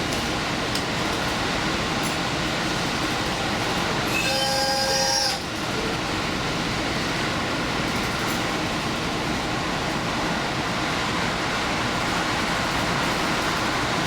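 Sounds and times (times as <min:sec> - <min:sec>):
train wheels and engine rumbling: 0:00.0 - 0:14.0
high-pitched wheel squeal: 0:04.1 - 0:05.5.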